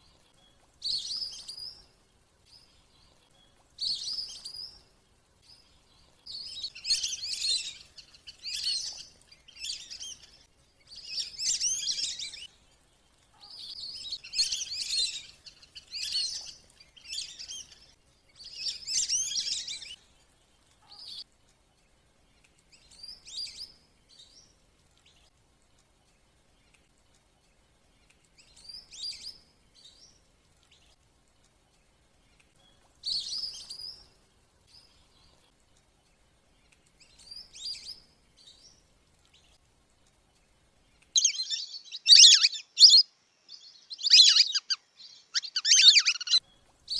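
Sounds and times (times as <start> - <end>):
ducks twittering whistles: 41.2 - 43.1, 43.9 - 46.4.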